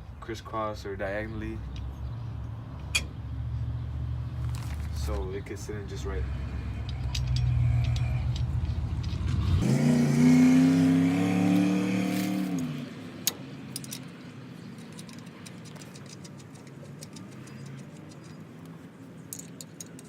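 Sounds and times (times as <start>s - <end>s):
light metallic clicks of lug nuts: 1.6s - 3.2s, 6.8s - 9.4s, 12.5s - 20.0s.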